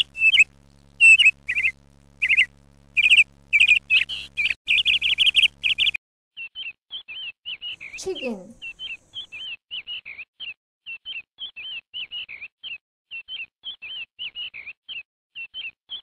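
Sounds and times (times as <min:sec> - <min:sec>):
sparrow chirping: 0:00.0 - 0:06.0, 0:06.6 - 0:10.1.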